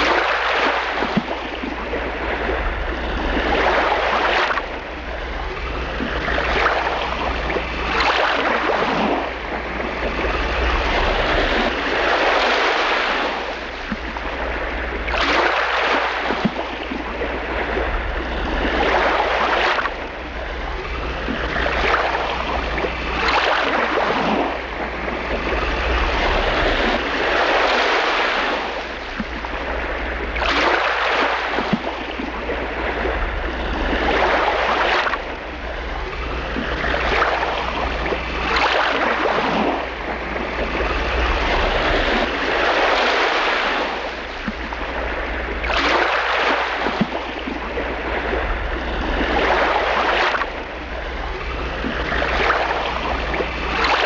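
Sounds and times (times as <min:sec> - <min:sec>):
water waves rushing: 0:00.0 - 0:54.0
steady low rumble: 0:46.8 - 0:53.9.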